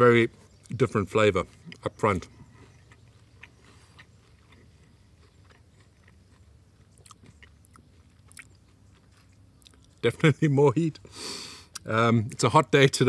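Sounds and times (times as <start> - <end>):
chewing bread: 0.5 - 10.3.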